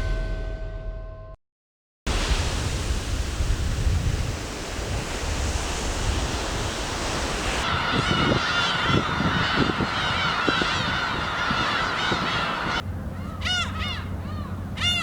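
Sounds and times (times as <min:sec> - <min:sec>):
sea surf on rocky shore: 0:02.1 - 0:12.8
wind buffeting microphone: 0:02.1 - 0:14.7
birds calling in short cries: 0:07.6 - 0:15.0.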